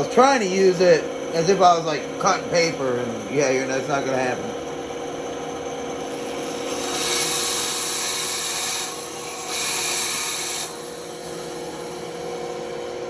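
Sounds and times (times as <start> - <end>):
band saw motor hum: 0.0 - 13.0
saw blade cutting wood: 6.6 - 11.2.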